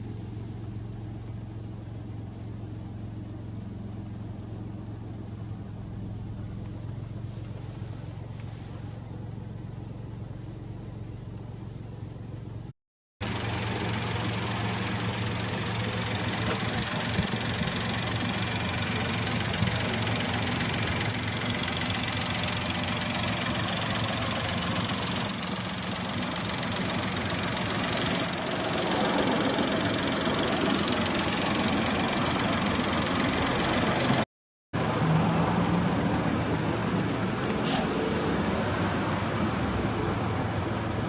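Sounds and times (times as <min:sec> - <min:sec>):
turbo car engine running: 0:13.2 - 0:41.0.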